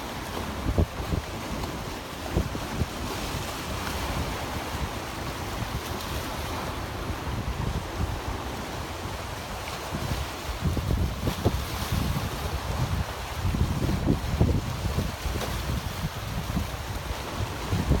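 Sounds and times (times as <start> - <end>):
waves rushing: 0.0 - 18.0.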